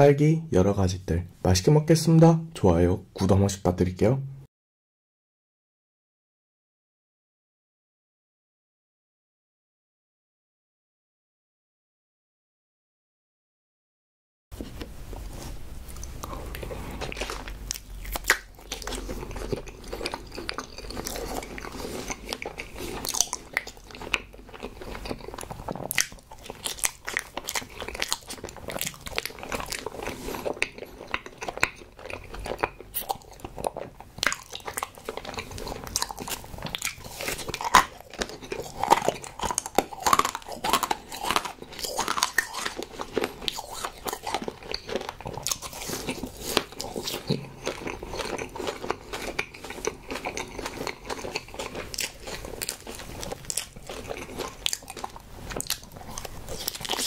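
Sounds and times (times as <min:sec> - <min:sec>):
person chewing wetly: 0:15.8 - 0:57.0.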